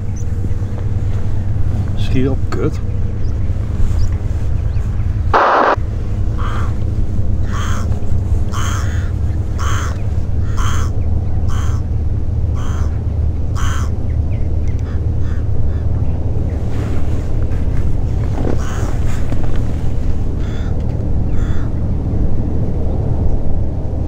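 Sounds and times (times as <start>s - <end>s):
steady low rumble: 0.0s - 24.0s
bird calling: 3.1s - 6.8s, 7.4s - 16.0s, 18.4s - 19.3s, 20.4s - 21.8s
noisy burst: 5.1s - 7.4s.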